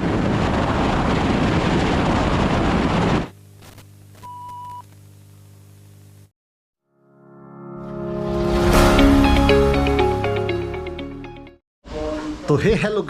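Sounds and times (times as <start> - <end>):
wind rushing over microphone: 0.0 - 3.3.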